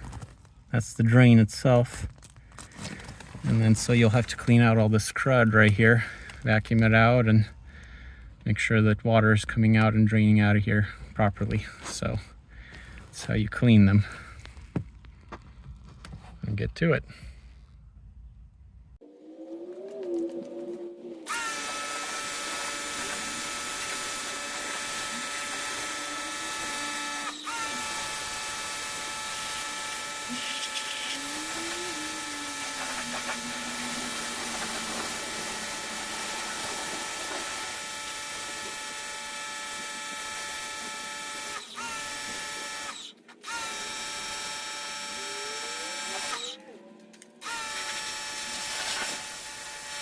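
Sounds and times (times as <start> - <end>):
vacuum cleaner running: 19.0 - 46.6, 47.4 - 50.0.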